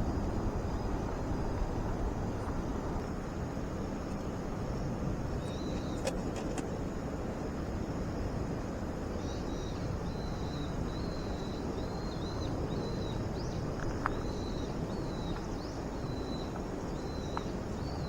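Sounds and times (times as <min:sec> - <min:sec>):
constant rushing noise: 0:00.0 - 0:18.0
insects chirping: 0:00.0 - 0:18.0.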